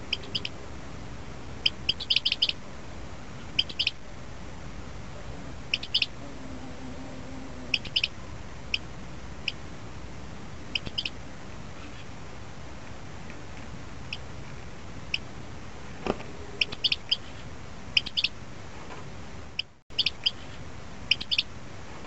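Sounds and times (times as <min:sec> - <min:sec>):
small bird chirping: 0:00.0 - 0:00.6, 0:01.6 - 0:02.6, 0:03.4 - 0:04.0, 0:05.7 - 0:06.2, 0:07.6 - 0:09.6, 0:10.7 - 0:11.2, 0:15.1 - 0:15.3, 0:16.6 - 0:18.4, 0:19.6 - 0:21.5
steady outdoor hiss: 0:00.0 - 0:22.0.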